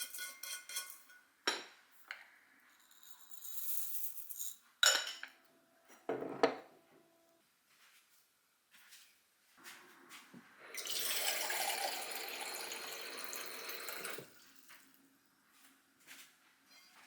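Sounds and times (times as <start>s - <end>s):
kitchen tap running into sink: 10.7s - 14.4s.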